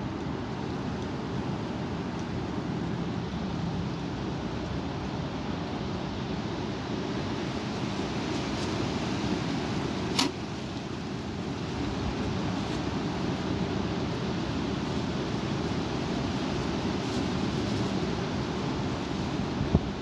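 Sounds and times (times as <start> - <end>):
sharp click: 10.1 - 10.4
strong wind blowing: 14.4 - 20.0
wind buffeting microphone: 14.4 - 20.0.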